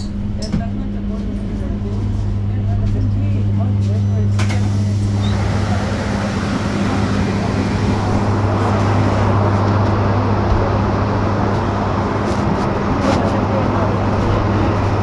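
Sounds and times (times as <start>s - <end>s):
road and tyre noise: 5.1s - 15.0s.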